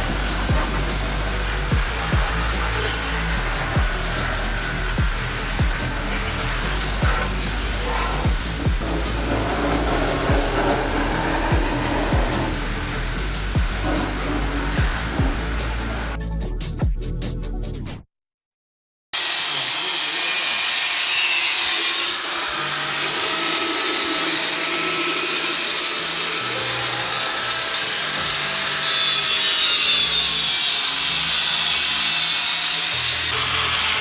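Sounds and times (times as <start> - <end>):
power tool running with high hiss: 0.0 - 16.2, 19.2 - 34.0.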